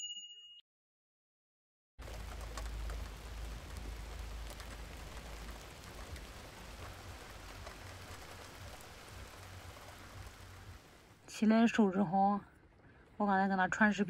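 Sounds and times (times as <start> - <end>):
raindrop ticks: 2.0 - 11.1
steady rain: 2.0 - 13.7.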